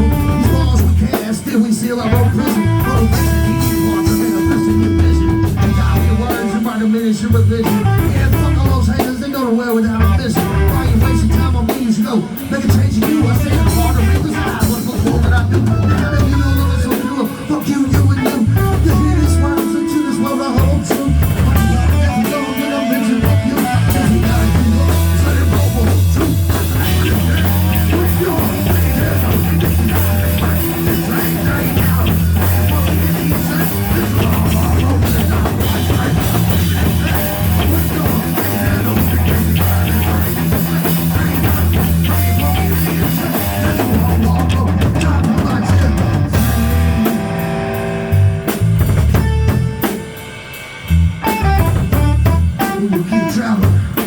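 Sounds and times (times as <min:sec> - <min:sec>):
drum kit: 0:00.0 - 0:54.0
heavy bass line: 0:00.0 - 0:54.0
live rock band playing: 0:00.0 - 0:54.0.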